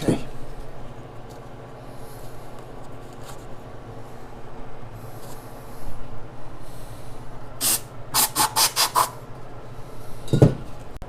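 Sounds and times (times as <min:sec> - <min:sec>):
hand sanding metal: 0:08.2 - 0:09.2.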